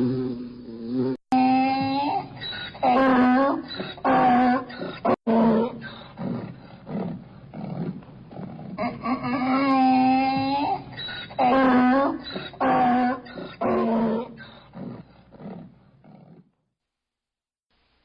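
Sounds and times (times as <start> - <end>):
animal crying: 1.4 - 6.0, 8.8 - 14.6.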